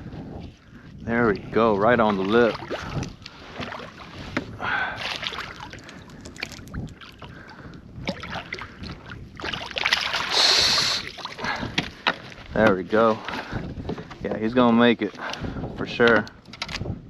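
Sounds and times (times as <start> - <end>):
water splashing: 1.1 - 13.6.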